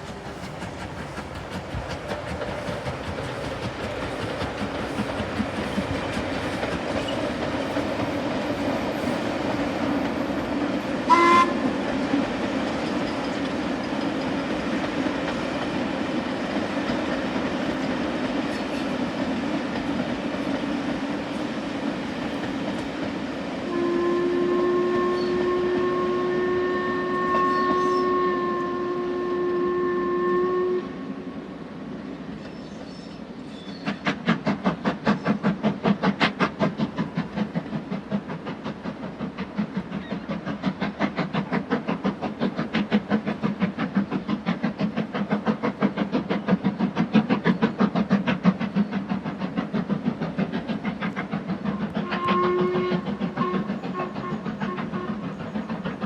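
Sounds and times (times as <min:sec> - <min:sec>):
rail clatter: 0:00.0 - 0:23.4
steam locomotive whistle: 0:08.2 - 0:11.9, 0:23.6 - 0:31.6, 0:51.7 - 0:55.5.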